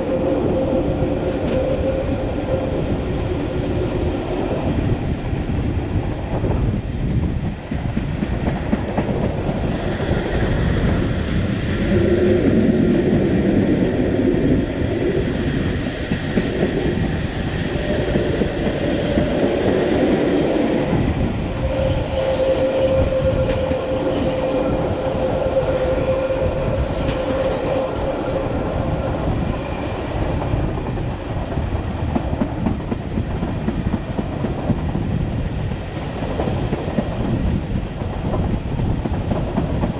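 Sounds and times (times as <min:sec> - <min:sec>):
train rumble and rail clatter: 0:00.0 - 0:39.9
high wheel squeal: 0:21.4 - 0:29.9.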